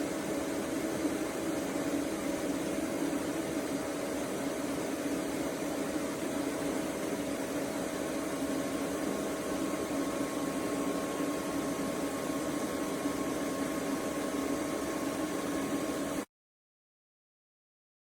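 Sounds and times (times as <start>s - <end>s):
machine hum: 0.0s - 16.3s.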